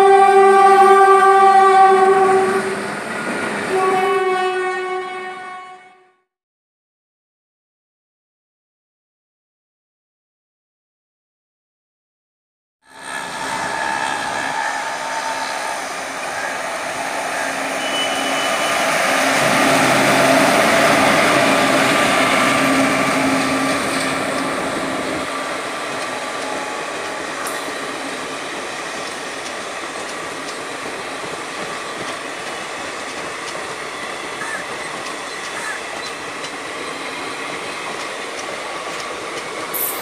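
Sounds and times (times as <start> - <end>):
electric locomotive passing: 0.0 - 5.7, 12.9 - 40.0
train wheels rolling on track: 12.9 - 40.0.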